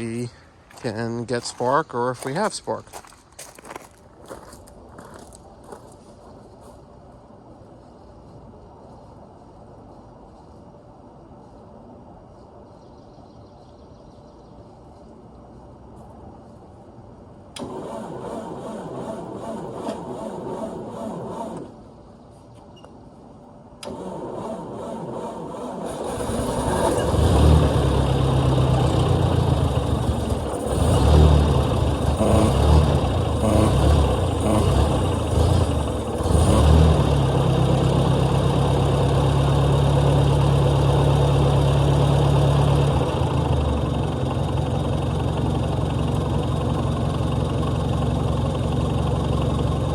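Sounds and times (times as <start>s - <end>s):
tractor engine idling: 0.0s - 2.8s, 23.8s - 49.9s
engine starter cranking: 17.6s - 21.8s, 23.8s - 36.9s.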